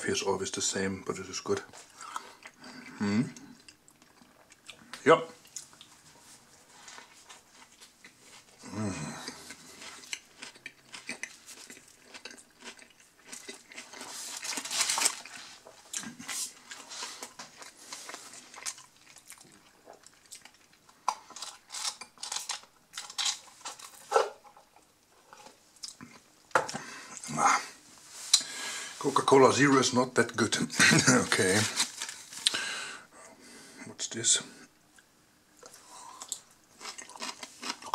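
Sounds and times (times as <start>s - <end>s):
person chewing and crunching: 1.8s - 6.0s, 6.7s - 24.8s, 25.4s - 27.3s, 34.9s - 37.9s.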